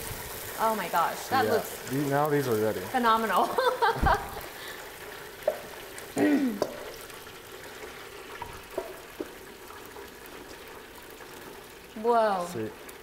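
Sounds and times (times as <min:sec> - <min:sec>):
chicken wings sizzling in oil: 0:00.0 - 0:13.0
person vocal sound: 0:06.2 - 0:06.7.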